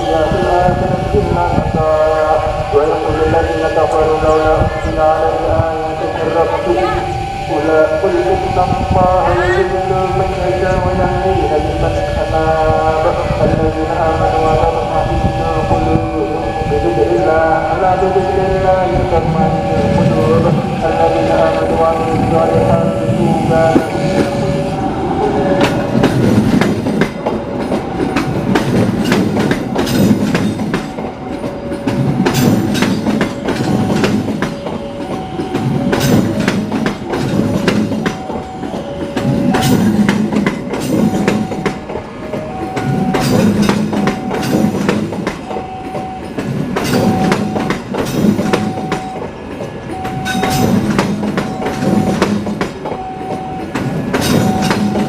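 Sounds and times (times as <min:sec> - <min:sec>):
train wheels clacking over rail joints: 0:25.5 - 0:55.0.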